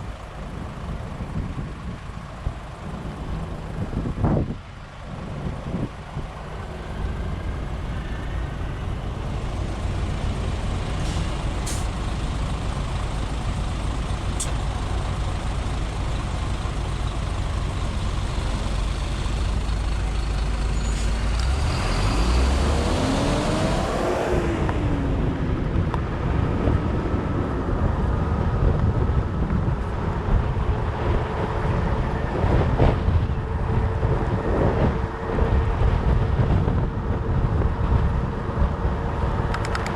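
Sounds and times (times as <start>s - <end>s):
wind buffeting microphone: 0.0s - 21.3s, 22.1s - 39.9s
whoosh with whine: 20.7s - 27.9s.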